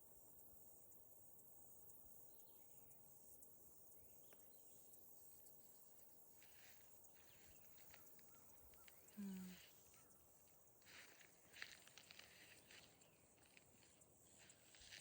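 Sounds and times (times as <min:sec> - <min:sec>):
faint bird chirps: 0:00.0 - 0:15.0
high insect hum: 0:00.0 - 0:15.0.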